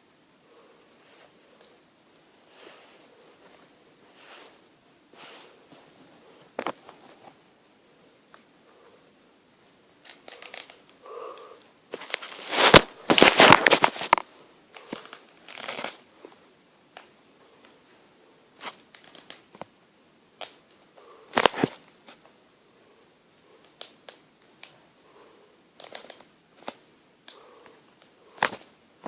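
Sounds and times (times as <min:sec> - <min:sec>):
crinkling and rustling handling noises: 0:01.0 - 0:07.5, 0:11.9 - 0:18.0, 0:18.6 - 0:19.8, 0:20.4 - 0:22.4, 0:25.8 - 0:28.8.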